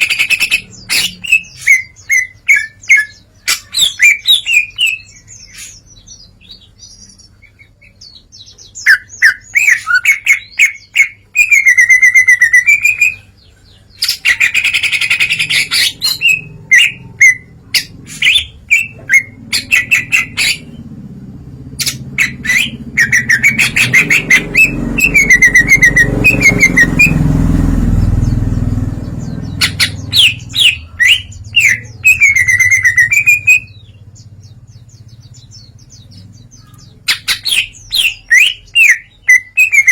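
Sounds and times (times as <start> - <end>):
bird singing chirps and trills: 0.0 - 39.9
low rumble: 15.6 - 36.8.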